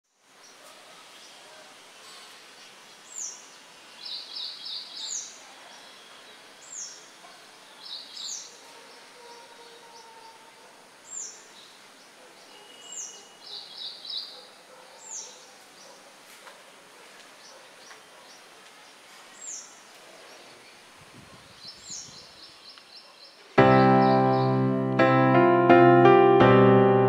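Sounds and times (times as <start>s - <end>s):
steady background hiss: 0.1s - 9.2s, 10.1s - 12.4s.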